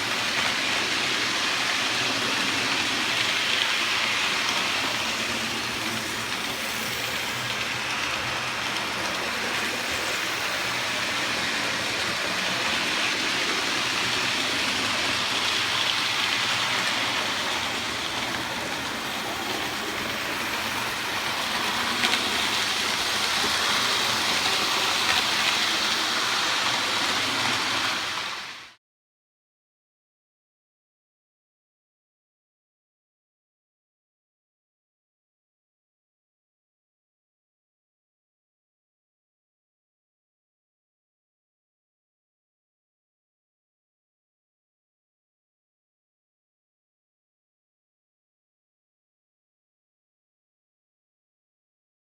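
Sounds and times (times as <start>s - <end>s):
model train whirring on track: 0.0s - 28.8s.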